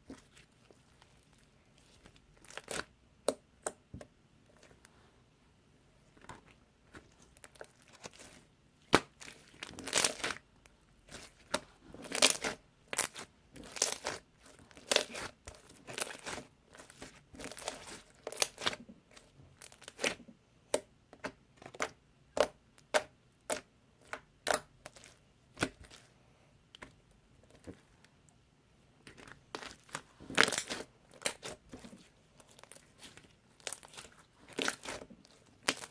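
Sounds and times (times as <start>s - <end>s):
slime crackling and popping: 7.4s - 10.4s, 11.1s - 18.8s, 29.1s - 35.9s.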